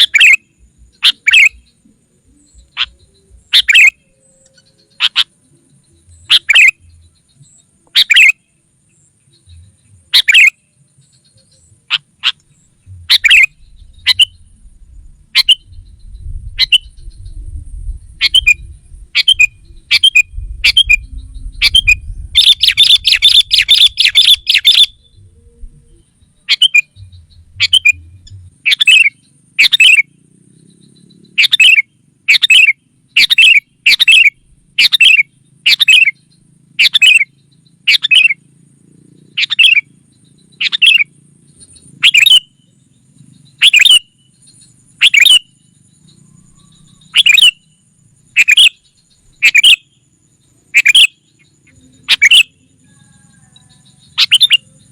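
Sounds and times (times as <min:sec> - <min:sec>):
faint low rumble: 0:00.0 - 0:08.0, 0:08.6 - 0:31.4, 0:32.1 - 0:42.0
bird calling loudly: 0:00.0 - 0:08.6, 0:09.3 - 0:17.4, 0:18.1 - 0:38.5, 0:39.1 - 0:54.9
rapid bird chattering: 0:00.0 - 0:54.9.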